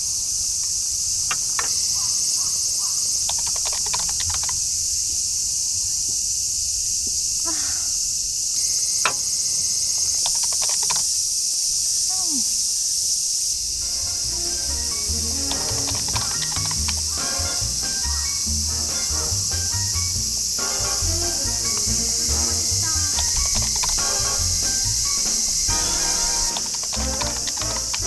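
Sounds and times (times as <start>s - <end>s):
insects chirring: 0.0s - 28.0s
sharp clicks: 1.2s - 4.8s, 10.0s - 11.3s, 14.6s - 18.4s, 21.6s - 28.0s.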